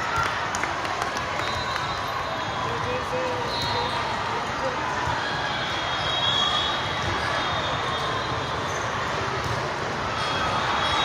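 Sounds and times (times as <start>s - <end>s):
crowd chatter and shouts: 0.0s - 11.0s.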